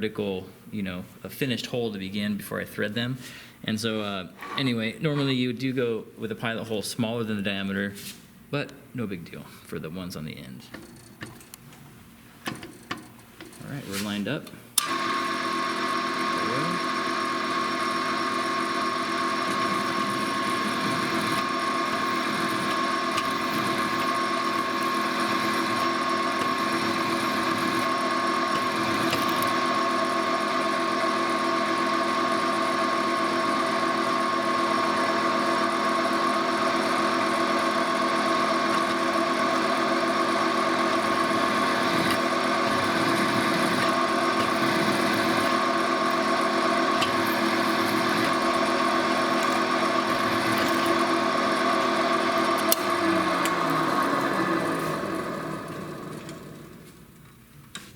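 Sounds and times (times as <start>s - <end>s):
drill press motor whine: 14.8s - 57.5s.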